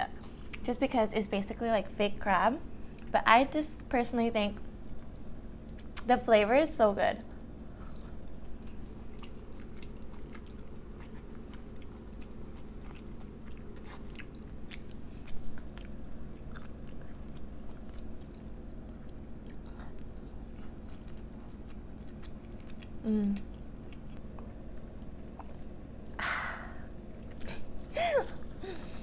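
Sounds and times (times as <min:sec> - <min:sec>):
steady low hum: 0:00.0 - 0:29.0
close chewing with wet mouth clicks: 0:07.2 - 0:26.1.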